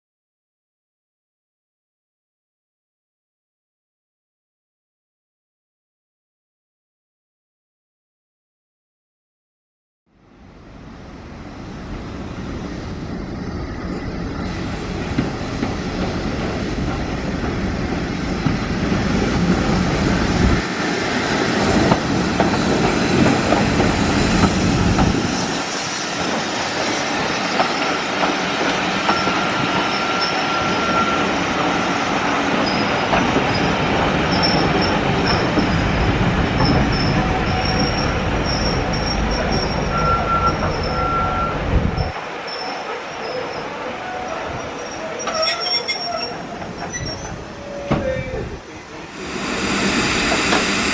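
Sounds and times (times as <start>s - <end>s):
train wheels rumbling on rails: 10.8s - 50.9s
high-pitched wheel squeal: 29.0s - 31.8s, 36.6s - 43.7s, 44.3s - 48.4s.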